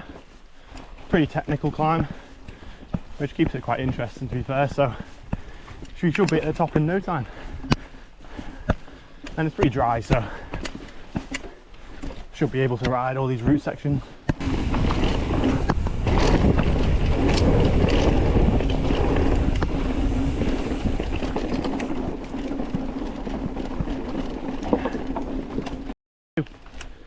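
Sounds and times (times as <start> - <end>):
bike rattling and clicking: 0.0 - 27.0
wind noise on microphone: 14.4 - 25.2.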